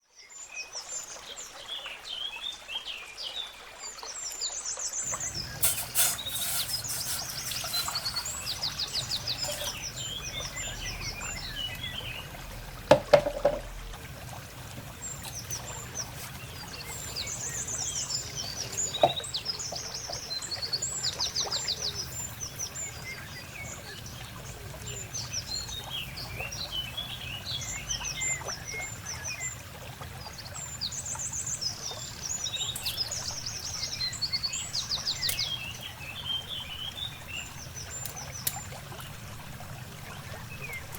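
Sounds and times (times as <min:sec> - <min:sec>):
small birds chirping: 0:04.8 - 0:40.9
sharp knock: 0:12.9 - 0:13.6.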